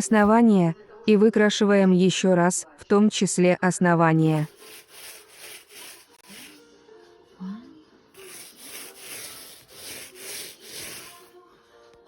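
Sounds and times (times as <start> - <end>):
rubbing strokes on cardboard: 4.3 - 6.6, 8.2 - 11.3.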